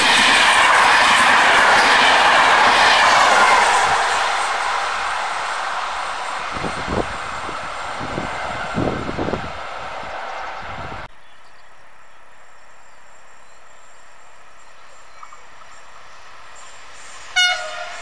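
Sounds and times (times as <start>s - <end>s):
train wheels rolling on rail: 0.0s - 11.1s.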